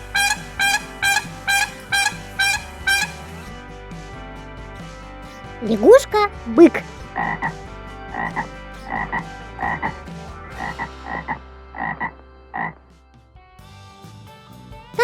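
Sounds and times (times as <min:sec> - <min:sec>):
bullfrog croaking: 0:00.0 - 0:03.4, 0:08.2 - 0:10.0, 0:10.6 - 0:12.8.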